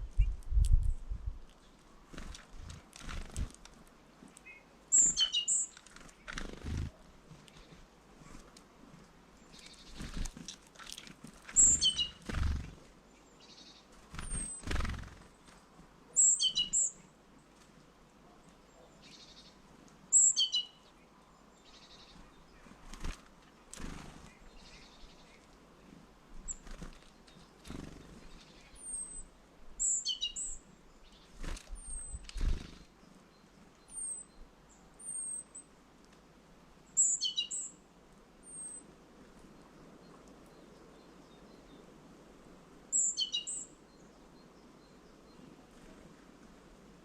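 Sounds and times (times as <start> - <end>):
high bird chirps: 4.5 - 5.8, 11.6 - 12.2, 16.2 - 17.0, 20.2 - 20.8, 37.0 - 37.7
chattering bird calls: 11.6 - 12.8.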